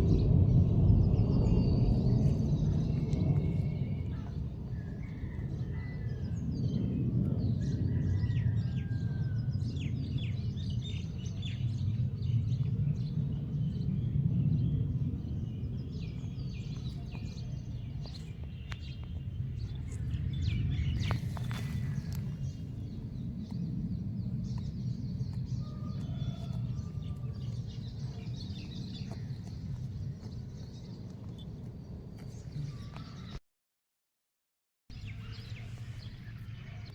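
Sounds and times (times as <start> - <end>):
low outdoor rumble: 0.0 - 33.4
small birds chirping: 10.2 - 33.4, 34.9 - 36.9.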